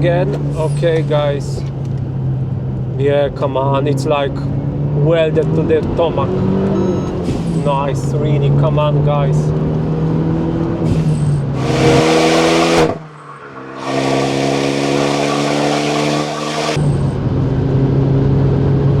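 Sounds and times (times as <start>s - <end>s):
car engine accelerating hard: 0.0s - 19.0s
turbo rushing noise: 10.8s - 16.8s.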